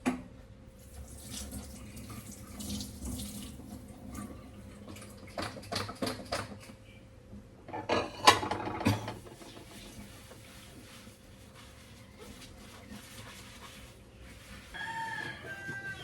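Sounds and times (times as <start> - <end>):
dishes and cutlery clinking: 7.7 - 9.7
dishes clattering: 7.7 - 9.9.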